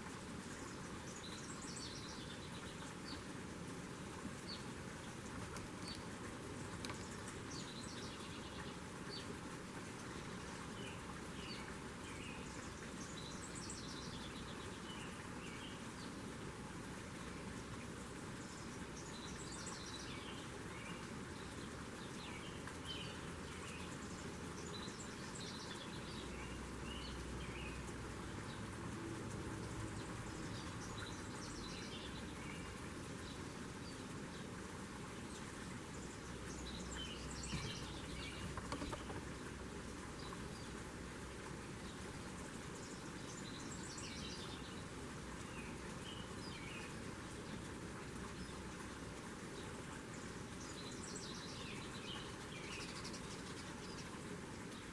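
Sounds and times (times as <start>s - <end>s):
steady outdoor hiss: 0.0s - 54.9s
songbird twittering chirps: 10.8s - 15.8s, 18.4s - 28.7s, 29.5s - 34.4s, 35.3s - 40.8s, 42.8s - 47.0s, 50.2s - 54.2s.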